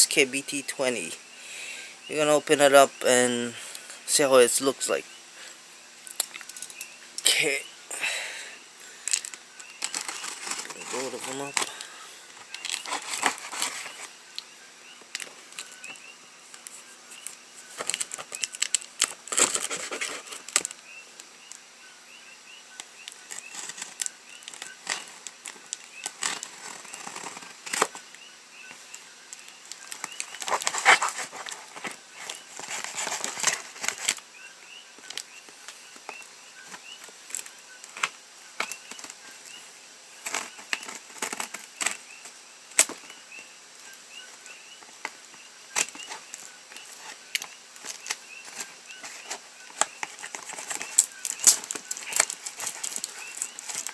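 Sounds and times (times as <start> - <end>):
cardboard packaging rustling and tearing: 9.1 - 14.4, 16.6 - 20.8, 23.0 - 28.1, 28.9 - 34.2, 43.8 - 53.9.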